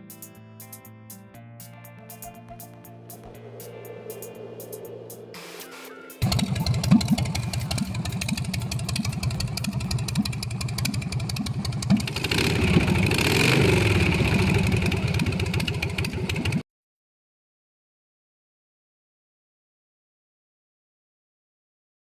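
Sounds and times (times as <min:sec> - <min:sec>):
motorcycle engine idling and revving: 0:03.2 - 0:16.6.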